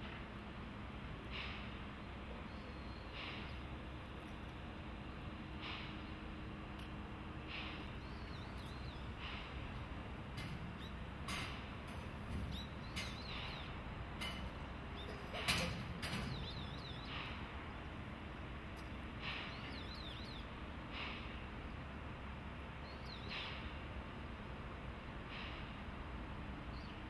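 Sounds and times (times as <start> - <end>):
small birds chirping and trilling: 7.9 - 9.3, 10.7 - 13.9, 14.8 - 18.0, 18.8 - 20.6, 22.8 - 23.6.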